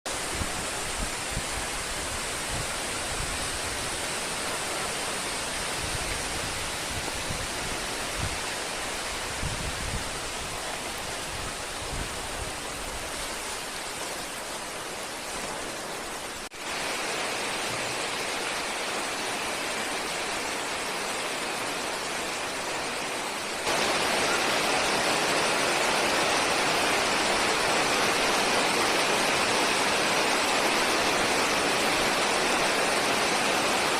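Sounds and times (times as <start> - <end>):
heavy rain pouring: 0.1 - 33.9
wind buffeting microphone: 5.3 - 13.7.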